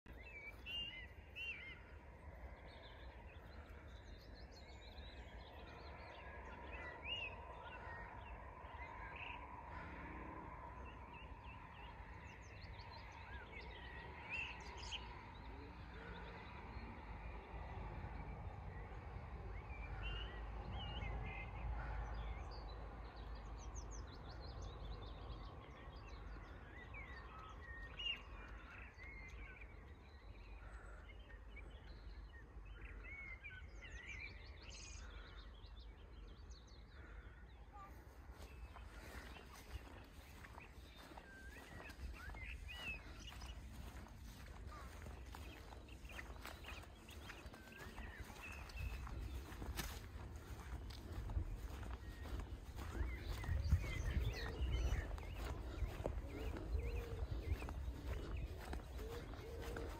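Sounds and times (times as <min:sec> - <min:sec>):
low outdoor rumble: 0:00.1 - 0:33.0, 0:33.7 - 0:59.9
birds chirping and whistling: 0:38.4 - 0:59.9.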